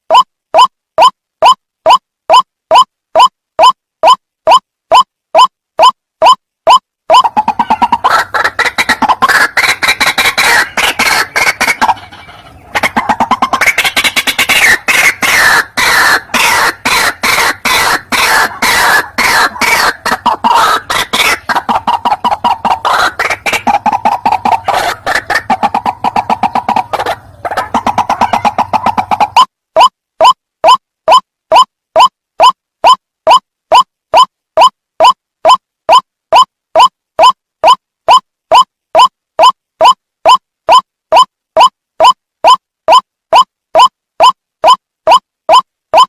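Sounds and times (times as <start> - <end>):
waterhen harsh repeated calls: 0.1 - 46.0.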